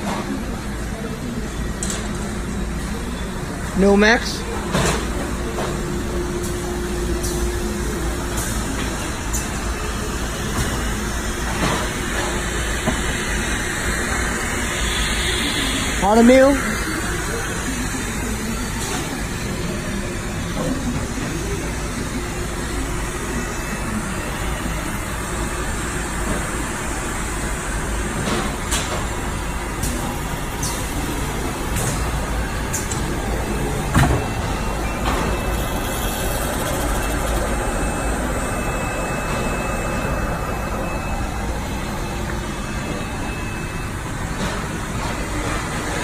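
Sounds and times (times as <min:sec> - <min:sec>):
production line machine noise: 0:00.0 - 0:46.0
faint high whine: 0:09.8 - 0:20.0, 0:32.4 - 0:44.6.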